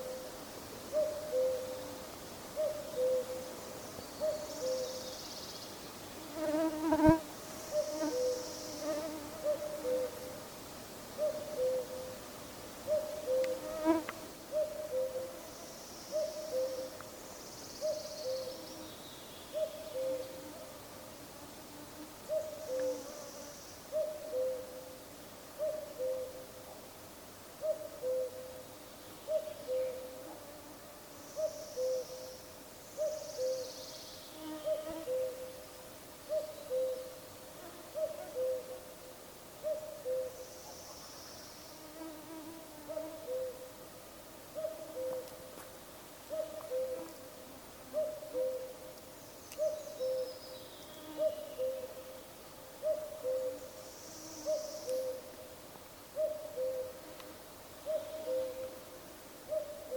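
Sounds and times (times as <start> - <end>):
cuckoo calling: 0.9 - 1.9, 2.6 - 3.5, 11.2 - 12.2, 12.9 - 13.7, 14.5 - 15.4, 16.1 - 17.0, 22.3 - 23.1, 44.6 - 45.4, 46.3 - 47.2, 47.9 - 48.9, 49.5 - 50.6, 52.8 - 53.7, 54.4 - 55.3, 56.2 - 57.0, 57.8 - 58.8.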